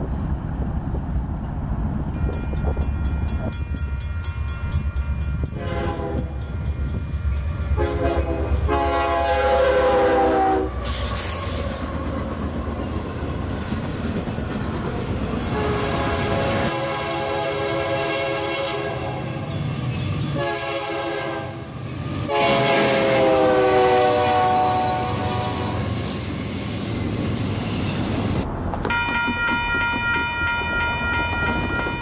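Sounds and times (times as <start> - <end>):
train air horn blasts: 5.5 - 6.5, 7.7 - 11.7, 15.4 - 19.4, 20.3 - 21.7, 22.3 - 26.1.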